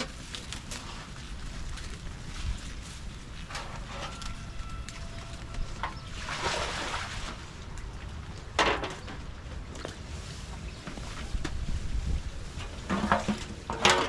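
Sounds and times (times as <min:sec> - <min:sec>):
noisy rustling: 0:00.0 - 0:14.0
wind rumbling on microphone: 0:00.0 - 0:14.0.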